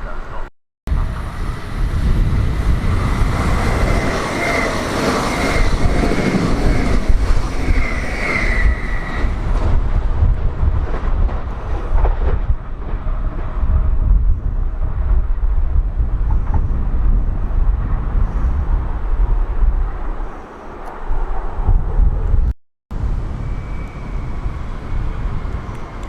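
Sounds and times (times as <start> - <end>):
train rumbling past: 0.9 - 26.0
high wavering tone: 23.2 - 25.7.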